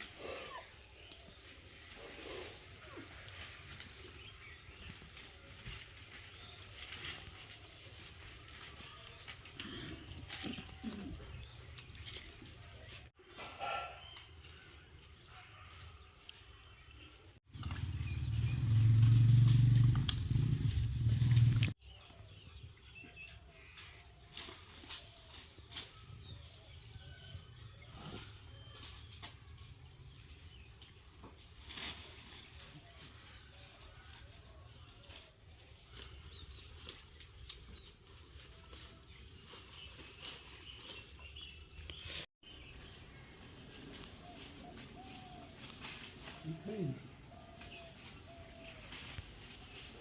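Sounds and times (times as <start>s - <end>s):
rustles: 0.0s - 16.8s, 17.4s - 21.8s, 23.5s - 50.0s
low engine hum: 17.5s - 21.8s.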